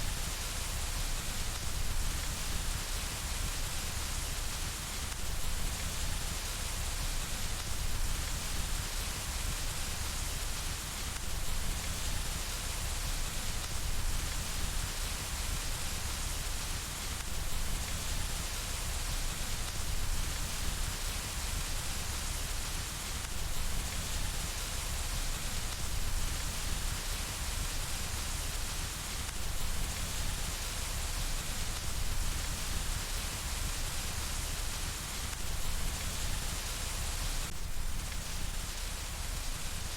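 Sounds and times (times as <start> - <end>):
rain on window glass: 10.8 - 39.9.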